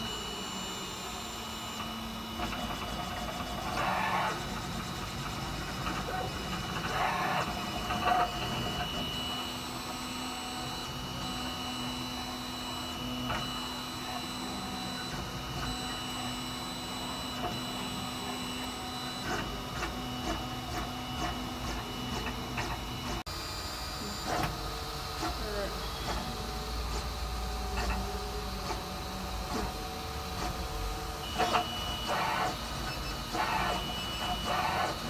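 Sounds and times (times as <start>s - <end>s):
printer stepper motors whining: 0.0s - 35.0s.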